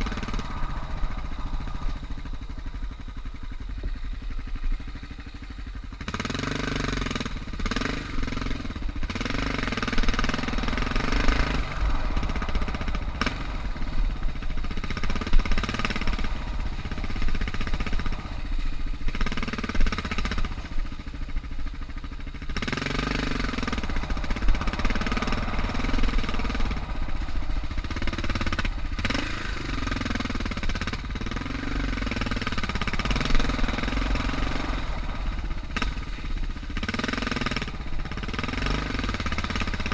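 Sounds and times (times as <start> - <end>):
rushing noise: 0.0 - 5.4, 6.8 - 39.9
motorcycle engine revving: 0.0 - 39.9.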